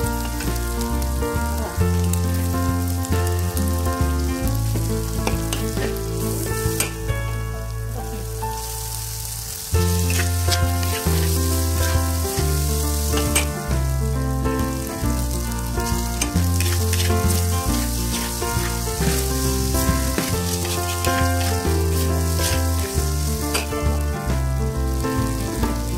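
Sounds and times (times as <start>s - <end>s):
background music: 0.0s - 25.9s
noodles sizzling in a pan: 0.0s - 25.9s
metal spatula scraping and tapping pan: 16.2s - 19.2s.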